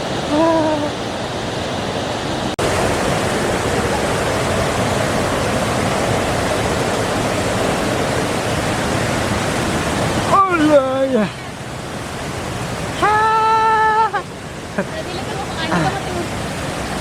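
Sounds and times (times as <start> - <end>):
waterfall rushing: 0.0 - 17.0
short voice call: 0.3 - 1.0.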